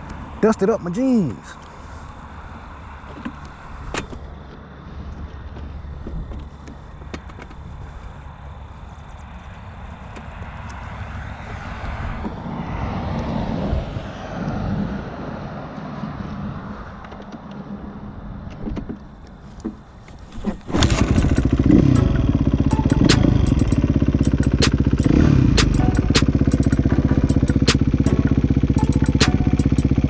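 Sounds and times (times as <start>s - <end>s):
dirt bike engine running: 20.7s - 30.0s.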